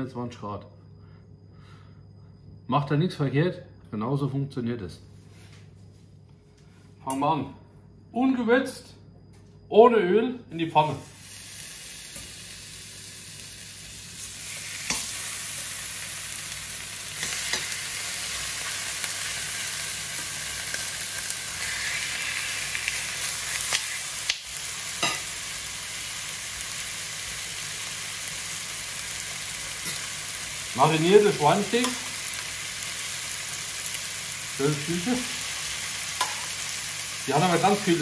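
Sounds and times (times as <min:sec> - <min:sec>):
steak sizzling in a frying pan: 0:11.0 - 0:38.0.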